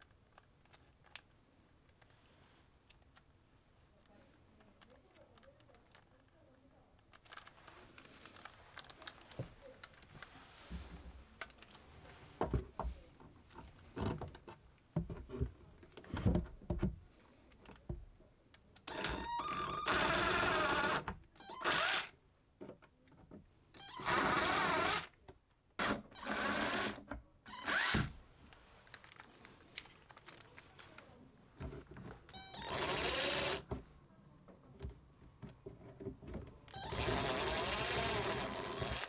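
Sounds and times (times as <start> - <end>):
knocks and clunks of handling: 7.0 - 19.1, 28.0 - 39.0
electric drill whirring: 18.9 - 22.1, 23.8 - 25.2, 25.8 - 28.2, 32.4 - 33.7, 36.7 - 39.0.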